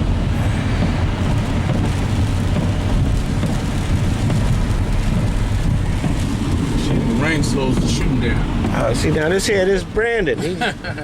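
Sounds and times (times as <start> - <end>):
hiss of rain on wet road: 0.0 - 11.0
road rumble inside car: 0.0 - 11.0.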